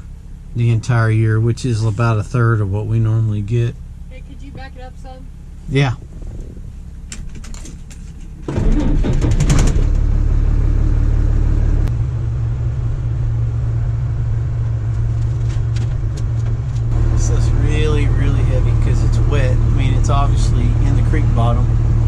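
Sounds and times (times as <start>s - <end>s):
diesel engine droning: 0.0s - 22.0s
machinery clatter: 7.1s - 10.0s.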